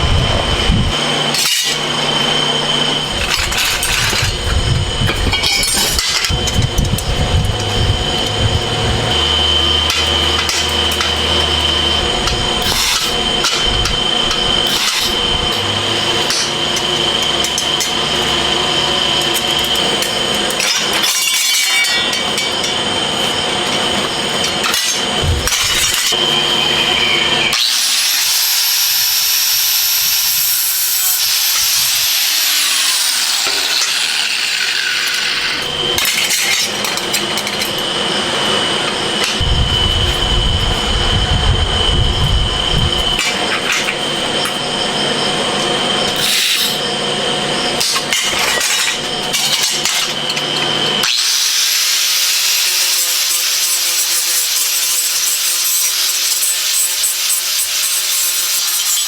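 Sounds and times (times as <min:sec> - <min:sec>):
power tool whining: 0:00.0 - 0:59.0
metal knocks and clanks: 0:25.2 - 0:26.2.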